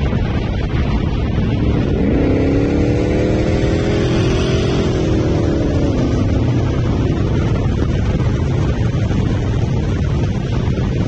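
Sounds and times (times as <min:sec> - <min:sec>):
road rumble: 0:00.0 - 0:11.0
wind noise: 0:00.0 - 0:11.0
car engine accelerating: 0:00.2 - 0:08.3.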